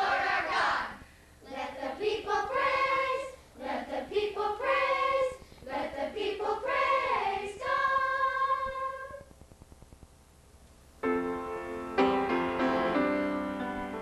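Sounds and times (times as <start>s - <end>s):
youth choir singing: 0.0s - 9.2s.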